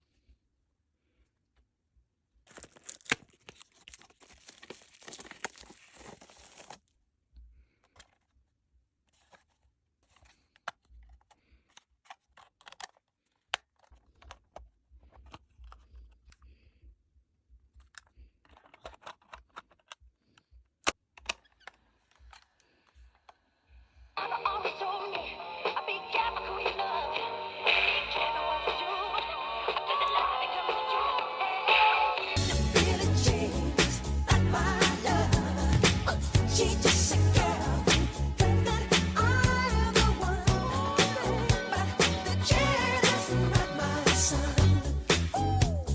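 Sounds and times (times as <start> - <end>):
plastic wrap tearing and crinkling: 2.5 - 6.9
music: 24.2 - 45.9.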